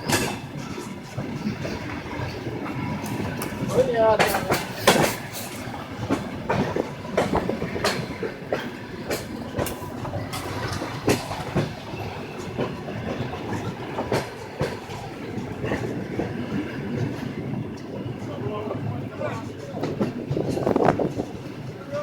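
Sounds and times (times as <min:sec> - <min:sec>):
train wheels clattering over rail joints: 0:00.0 - 0:22.0.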